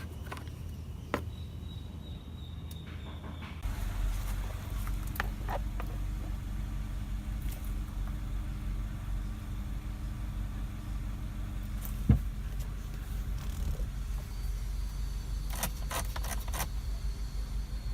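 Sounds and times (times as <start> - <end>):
car engine idling: 3.6 - 17.9.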